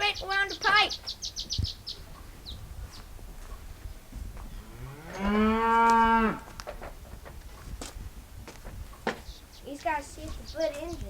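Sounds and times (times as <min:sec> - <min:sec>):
cow mooing: 0:04.6 - 0:06.6.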